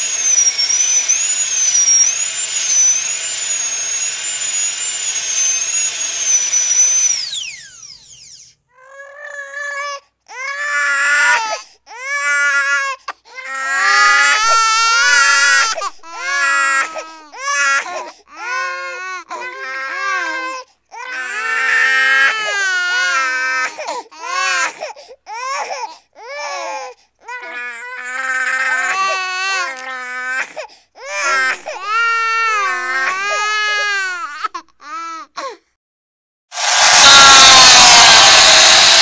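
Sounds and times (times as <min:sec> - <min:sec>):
baby crying: 0:08.7 - 0:35.6, 0:36.6 - 0:39.0.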